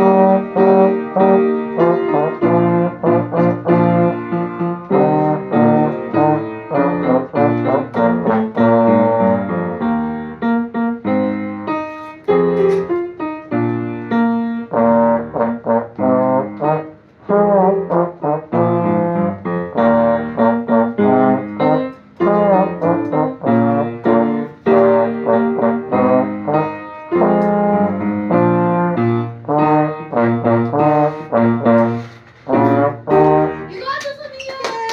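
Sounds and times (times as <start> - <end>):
trombone solo: 0.0 - 10.2, 14.2 - 34.0
piano accompaniment: 0.0 - 34.9.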